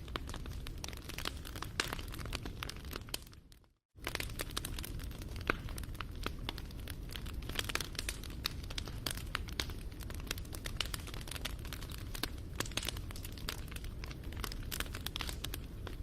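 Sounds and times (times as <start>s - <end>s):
wood fire crackling: 0.0s - 16.0s
sharp pops of fire: 4.0s - 16.0s.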